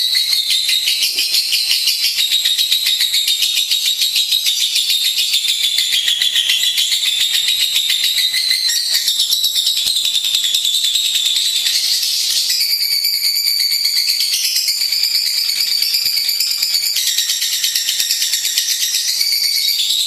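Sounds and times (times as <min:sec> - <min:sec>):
bird chattering: 0:00.0 - 0:04.8.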